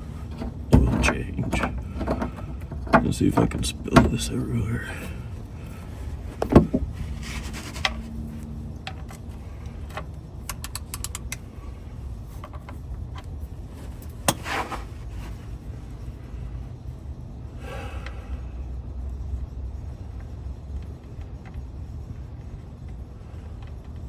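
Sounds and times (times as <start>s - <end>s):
low steady rumble: 0.0s - 24.0s
metallic clicks of hand tools: 10.5s - 11.4s.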